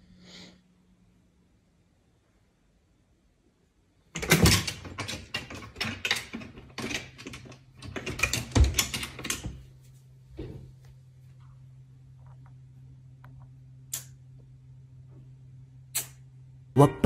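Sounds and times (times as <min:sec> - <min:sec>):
cat claws clattering on wood: 0:04.2 - 0:09.5.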